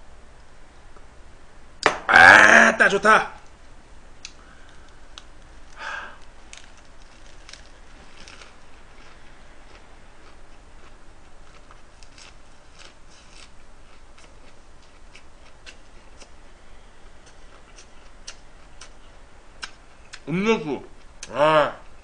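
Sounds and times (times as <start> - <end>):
faint steady hiss: 0.0 - 22.0
person chewing and crunching: 5.6 - 16.4, 17.0 - 20.3.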